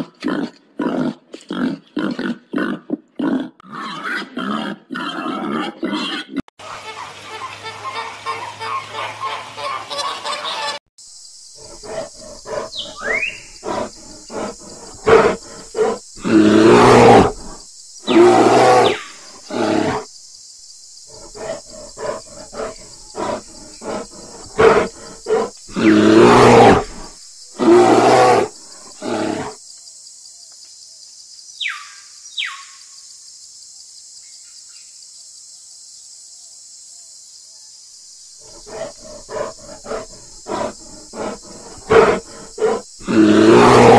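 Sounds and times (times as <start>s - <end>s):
animal calling deeply: 38.4s - 43.9s.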